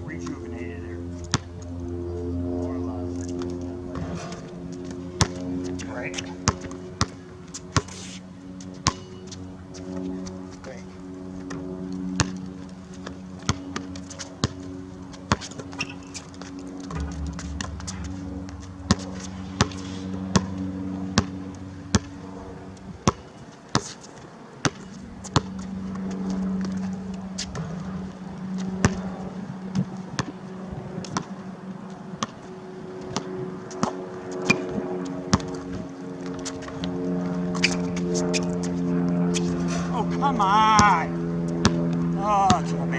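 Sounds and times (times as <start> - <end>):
steady low hum: 0.0 - 42.9
basketball bouncing on court: 6.2 - 8.0, 8.8 - 9.3, 13.4 - 20.6, 24.6 - 25.6, 41.6 - 41.9.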